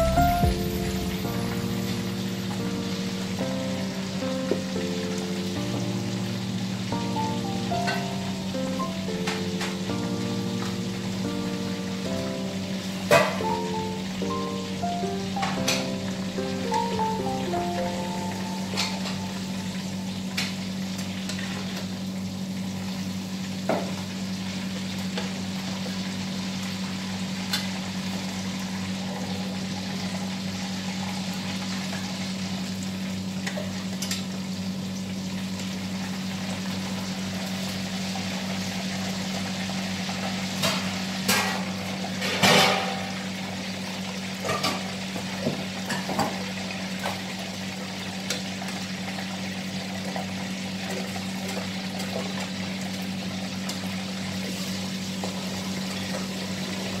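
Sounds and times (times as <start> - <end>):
low hum: 0.0 - 4.6
food sizzling in hot oil: 0.0 - 57.0.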